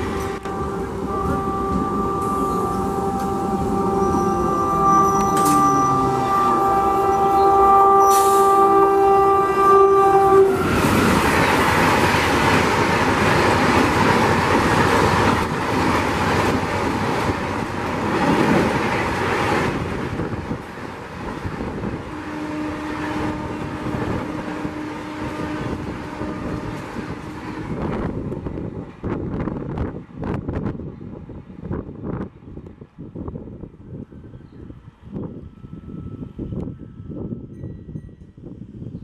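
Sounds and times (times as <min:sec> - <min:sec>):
train horn chord: 0:00.0 - 0:11.2, 0:21.8 - 0:28.0
train rushing past: 0:00.0 - 0:32.2.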